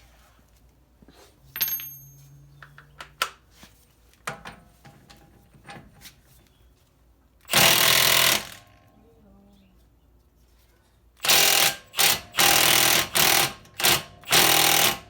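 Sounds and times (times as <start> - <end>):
metallic clinks of hand tools: 1.5 - 2.6.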